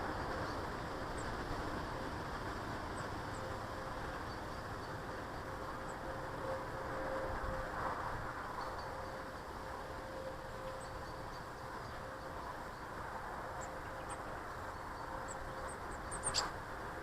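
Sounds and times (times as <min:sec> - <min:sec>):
small birds chirping: 0:13.6 - 0:16.6.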